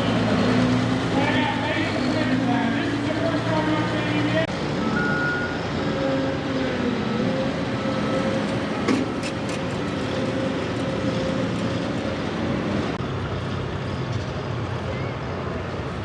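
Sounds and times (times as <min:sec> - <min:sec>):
heavy vehicle engine running: 0:00.0 - 0:16.0.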